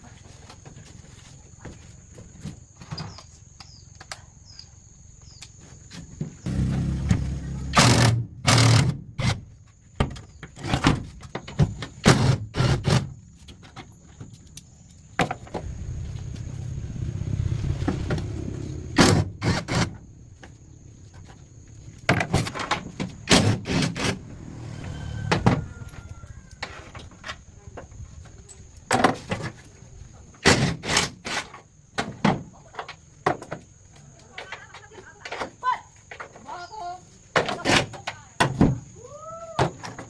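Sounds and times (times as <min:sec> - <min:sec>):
steady rumbling: 0:15.4 - 0:26.6.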